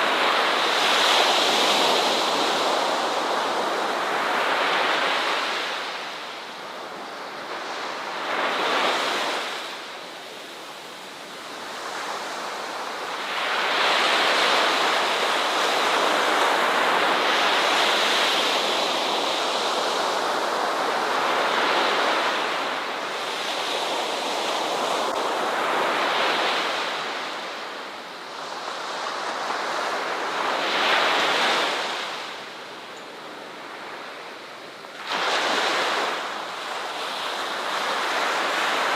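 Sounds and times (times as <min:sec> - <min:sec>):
ocean waves washing onto beach: 0:00.0 - 0:38.9.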